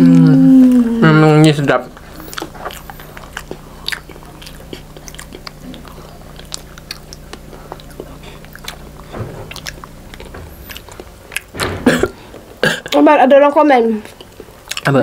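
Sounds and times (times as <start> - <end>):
steady low hum: 0.0 - 15.0
wet chewing mouth clicks: 2.0 - 11.5, 14.0 - 15.0.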